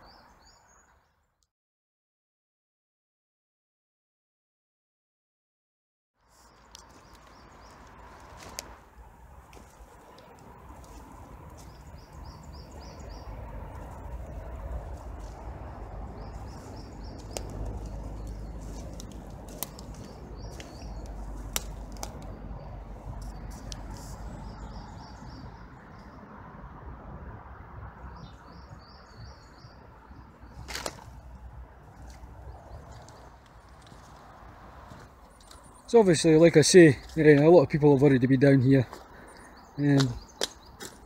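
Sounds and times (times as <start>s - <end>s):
songbird singing: 0.0s - 1.5s, 6.2s - 26.4s, 28.0s - 41.0s.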